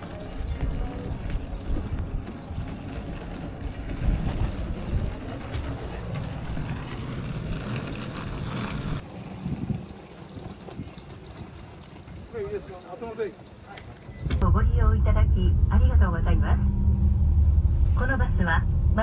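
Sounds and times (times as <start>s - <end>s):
bus engine rumble: 0.0s - 9.8s, 14.0s - 19.0s.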